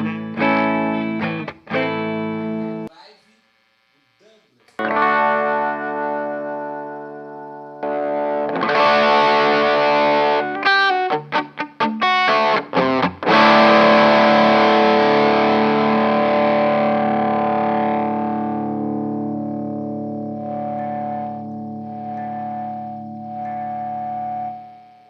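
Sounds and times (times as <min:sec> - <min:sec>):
distorted electric guitar chords: 0:00.0 - 0:02.9, 0:04.8 - 0:25.0.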